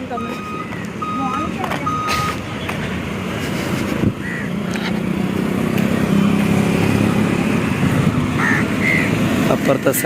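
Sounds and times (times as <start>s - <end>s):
motor vehicles passing: 0.0s - 10.0s.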